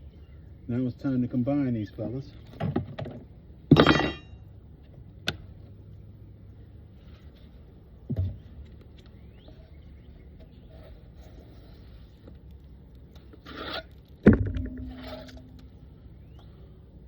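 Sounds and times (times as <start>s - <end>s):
steady low hum: 3.2s - 17.0s
wood scraping: 13.2s - 15.8s
dull thump: 14.2s - 15.5s.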